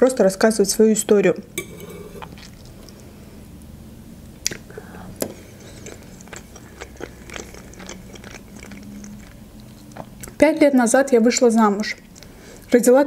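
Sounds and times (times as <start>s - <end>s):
chewing with wet mouth clicks: 2.2s - 3.1s, 4.3s - 10.4s, 11.8s - 12.8s.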